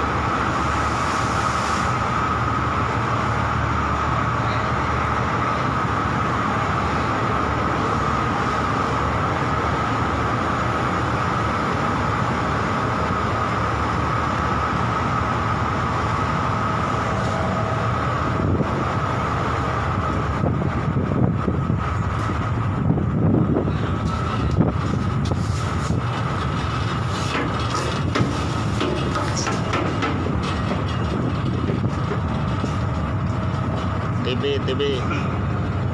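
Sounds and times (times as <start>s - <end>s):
constant high hum: 0.0s - 35.9s
ship mechanical drone: 0.0s - 35.9s
knocks and rumbles: 26.1s - 34.1s.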